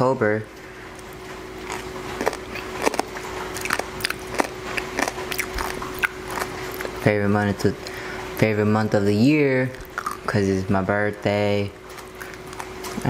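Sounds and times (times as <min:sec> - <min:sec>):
faint steady hum: 0:00.0 - 0:13.0
chewing food: 0:00.6 - 0:07.1, 0:09.7 - 0:10.3, 0:11.7 - 0:13.0.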